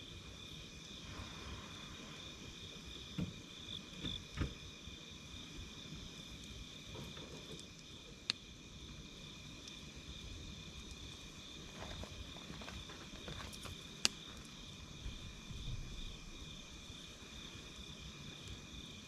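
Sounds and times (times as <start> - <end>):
crickets chirping: 0.0 - 19.0
soft low knocks of fire: 0.0 - 19.0
campfire crackling pop: 3.0 - 4.8, 6.4 - 8.5, 13.5 - 15.2.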